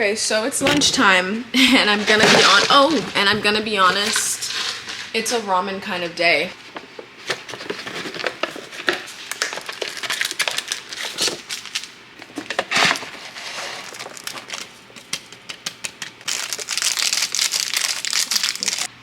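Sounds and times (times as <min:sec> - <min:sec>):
ramen packet crinkling and crunching: 0:07.4 - 0:18.9.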